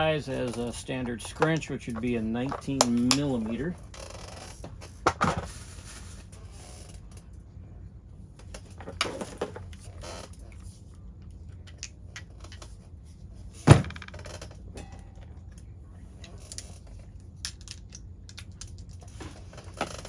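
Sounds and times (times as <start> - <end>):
metal tools clinking: 11.6 - 12.8
sharp metal clunk: 14.8 - 15.3.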